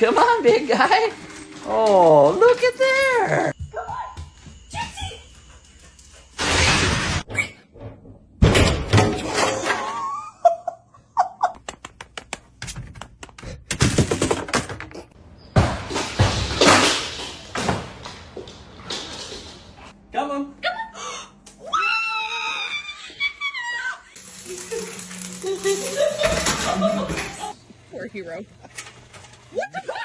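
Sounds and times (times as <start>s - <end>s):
door banging and rattling: 6.7s - 9.6s.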